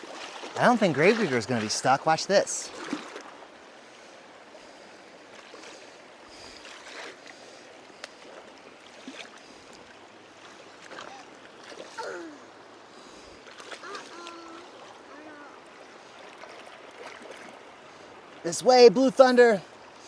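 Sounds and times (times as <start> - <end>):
light knocks and splashes: 0.0 - 2.0, 2.7 - 3.4, 6.6 - 12.1, 13.4 - 15.0, 16.0 - 17.6
creek water running: 0.0 - 20.0.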